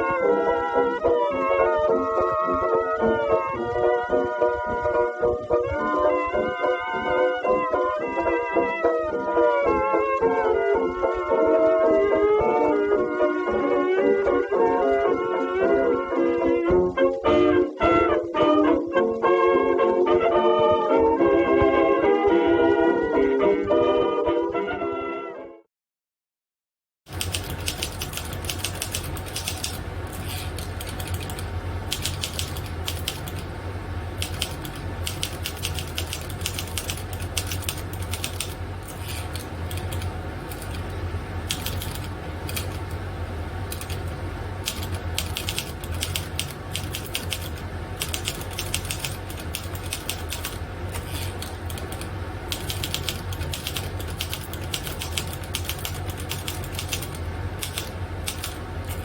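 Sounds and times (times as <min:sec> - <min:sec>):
fast typing key clicks: 0:27.1 - 0:33.5, 0:34.1 - 0:43.0, 0:43.6 - 0:59.0
steady low hum: 0:27.1 - 0:59.0.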